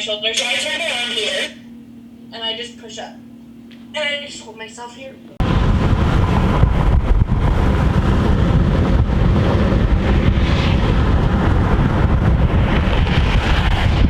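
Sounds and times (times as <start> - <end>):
wind buffeting microphone: 5.4 - 14.0.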